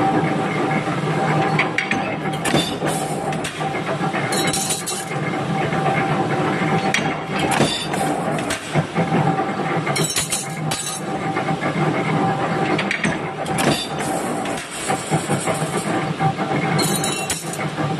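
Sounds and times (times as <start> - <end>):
machine humming and whining: 0.0 - 17.9
metallic clanks: 16.8 - 17.7.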